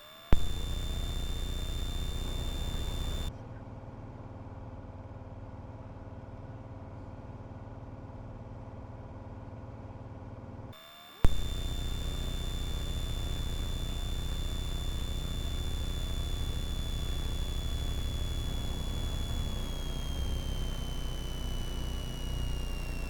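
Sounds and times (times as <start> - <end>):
high whine: 0.0 - 3.3, 10.8 - 23.0
sharp click: 0.0 - 3.3, 10.8 - 23.0
airplane engine droning: 0.3 - 3.3, 10.8 - 23.0.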